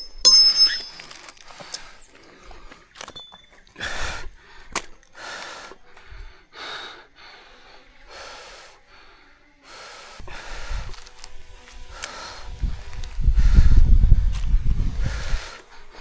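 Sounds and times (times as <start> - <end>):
person breathing hard: 3.7 - 16.0.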